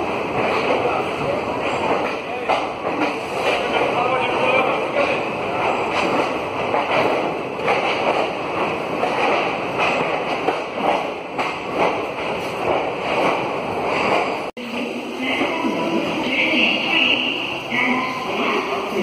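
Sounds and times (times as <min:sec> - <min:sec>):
train rumbling: 0:00.0 - 0:19.0
knocks and clacks: 0:00.3 - 0:01.0, 0:01.6 - 0:04.0, 0:04.9 - 0:14.5.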